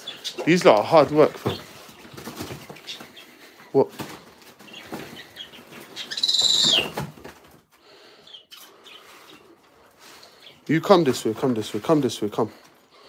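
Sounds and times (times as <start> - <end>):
knocks and rustling: 0.4 - 3.0
bird squawking: 4.7 - 7.0.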